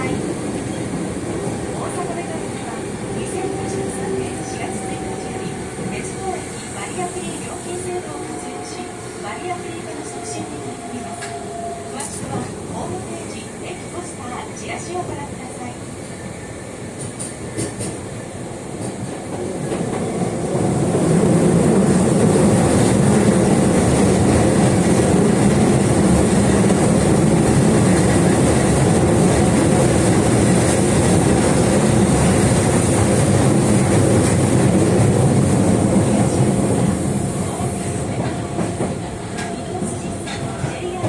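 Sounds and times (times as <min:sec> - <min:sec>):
subway train wheels and motors rumbling: 0:00.0 - 0:41.0.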